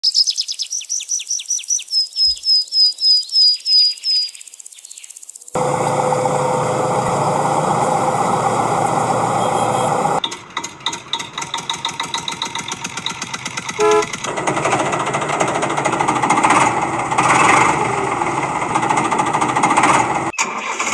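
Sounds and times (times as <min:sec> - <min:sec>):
vehicle engine humming: 0:05.6 - 0:20.3.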